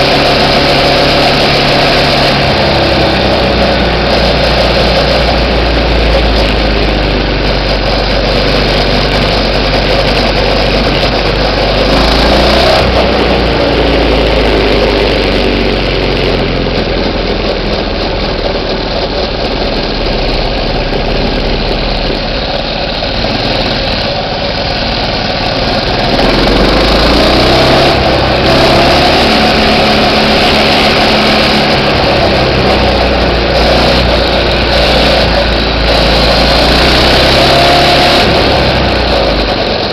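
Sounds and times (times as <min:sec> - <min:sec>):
minibike engine revving: 0:00.0 - 0:39.9.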